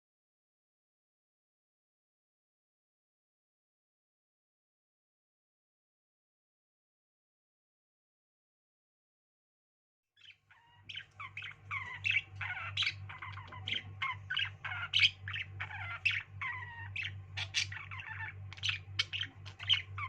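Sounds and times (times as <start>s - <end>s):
pet birds chattering: 10.2s - 20.0s
low hum: 10.6s - 20.0s.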